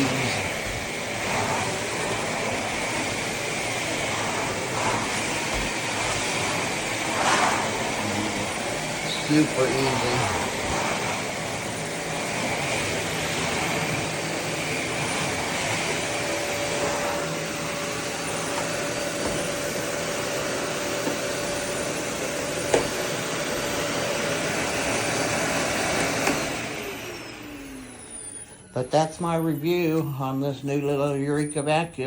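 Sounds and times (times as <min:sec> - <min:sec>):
vacuum cleaner running: 0:00.0 - 0:32.0
motor winding down whine: 0:26.3 - 0:30.4.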